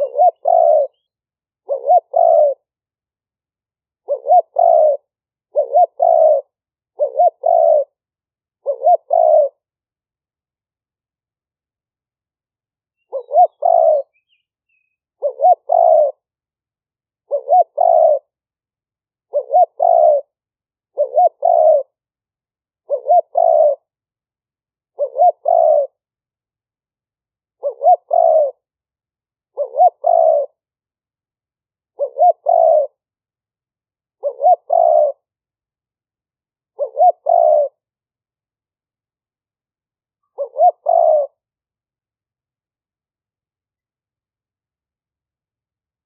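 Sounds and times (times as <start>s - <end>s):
dove cooing: 0.0s - 2.7s, 4.0s - 8.0s, 8.6s - 9.6s, 13.0s - 16.3s, 17.2s - 18.4s, 19.3s - 22.0s, 22.8s - 23.9s, 24.9s - 26.0s, 27.6s - 28.7s, 29.5s - 30.6s, 31.9s - 33.0s, 34.2s - 35.3s, 36.7s - 37.9s, 40.2s - 41.4s.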